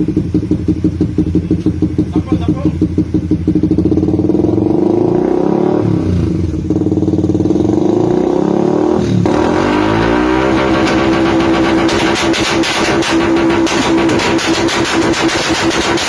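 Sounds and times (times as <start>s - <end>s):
motorcycle engine revving: 0.0s - 16.0s
rapid crackling clatter: 10.6s - 16.0s.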